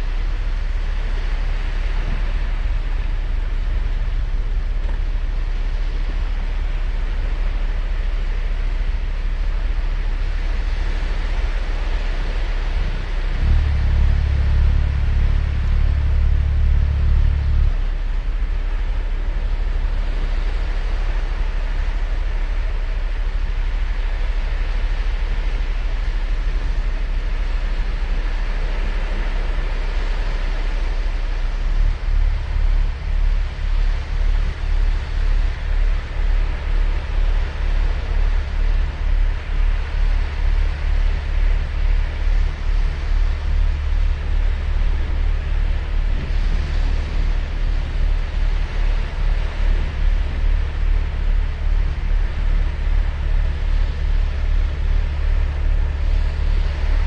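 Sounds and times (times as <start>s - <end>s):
heavy low pulsing rumble: 0.0s - 57.0s
surf washing onto beach: 0.1s - 57.0s.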